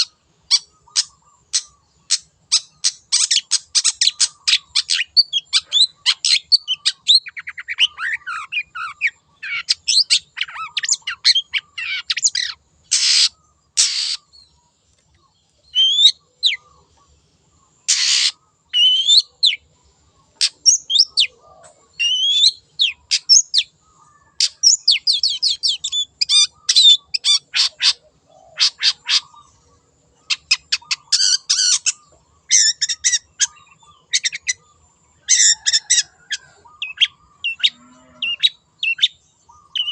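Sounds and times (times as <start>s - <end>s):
shrike singing: 15.2s - 39.9s.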